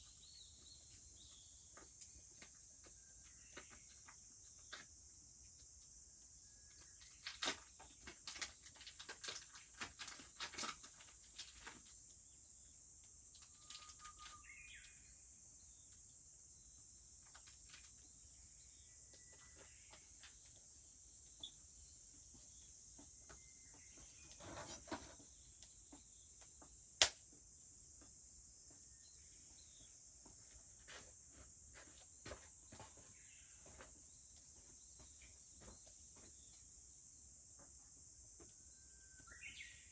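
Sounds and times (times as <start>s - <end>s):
insects droning: 0.0s - 39.9s
faint bird chirps: 11.7s - 26.7s, 28.6s - 31.1s, 38.4s - 39.9s.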